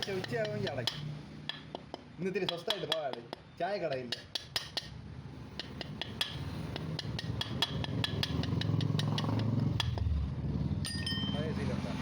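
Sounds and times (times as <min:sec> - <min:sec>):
light metallic clicks and taps: 0:00.0 - 0:05.0.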